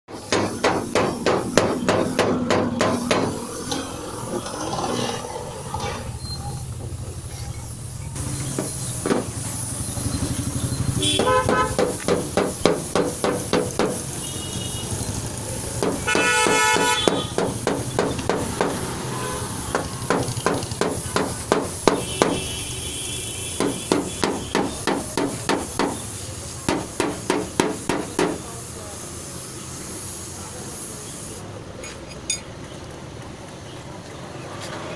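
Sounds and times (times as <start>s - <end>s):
hammer blows on metal: 0.1s - 3.5s, 11.0s - 15.0s, 15.7s - 22.7s, 23.5s - 28.5s
horn sounding: 10.0s - 12.9s, 13.6s - 26.1s.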